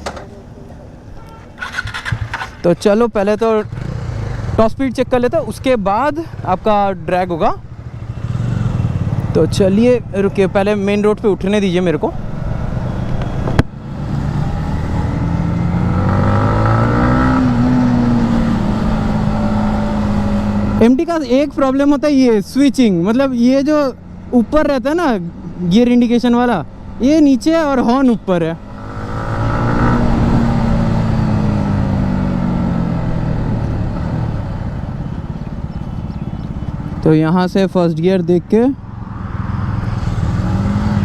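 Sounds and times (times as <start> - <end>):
motorcycle engine accelerating: 1.2 - 5.2, 6.4 - 22.4, 25.3 - 37.1, 38.8 - 41.0.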